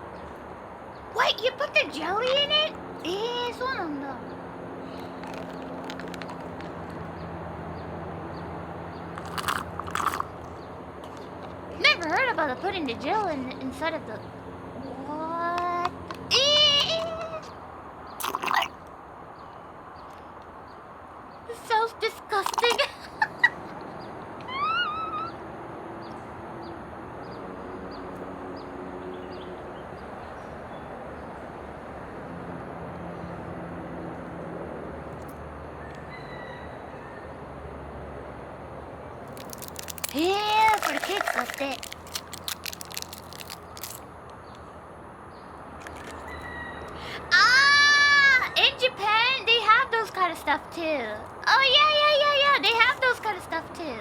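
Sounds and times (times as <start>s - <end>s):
chewing crunchy snack: 4.9s - 7.1s, 9.1s - 12.1s, 18.2s - 18.8s, 22.4s - 23.0s, 39.3s - 44.1s, 45.8s - 47.0s
animal call rising and wavering: 24.4s - 25.5s.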